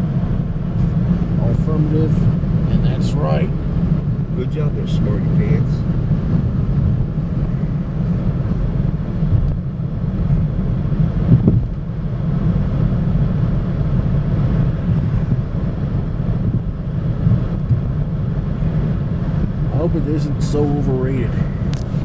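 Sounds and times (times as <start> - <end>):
car cabin road rumble: 0.0 - 22.0
car bump: 11.2 - 11.8.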